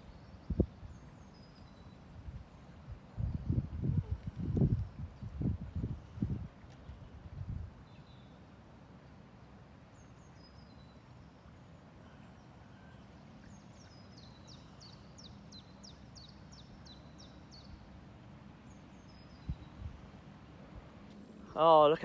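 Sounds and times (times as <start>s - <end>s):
small songbird singing: 0.0s - 3.8s, 7.8s - 8.4s, 10.0s - 18.0s, 18.6s - 20.0s
low wind rumble: 0.0s - 8.2s, 13.1s - 22.0s.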